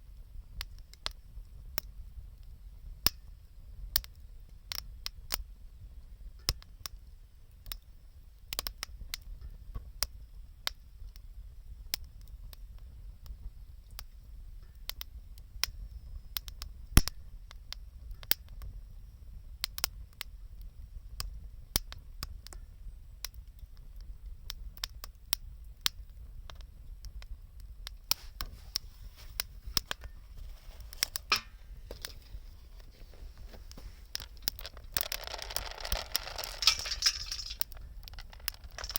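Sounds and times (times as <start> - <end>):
wood fire crackling: 24.7 - 38.9.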